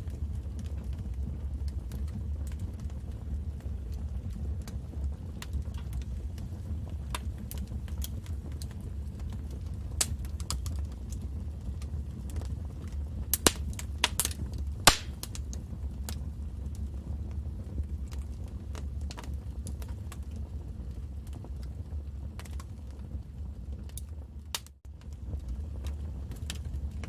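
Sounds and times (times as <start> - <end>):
wood fire crackling and popping: 0.0 - 27.0.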